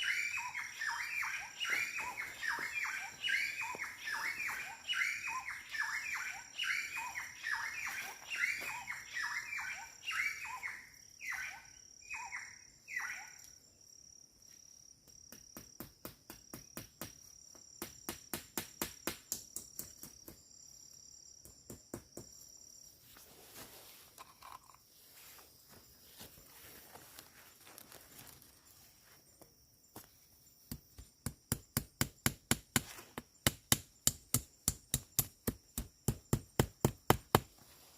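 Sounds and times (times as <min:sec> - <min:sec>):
bird chirping: 0:00.0 - 0:13.7.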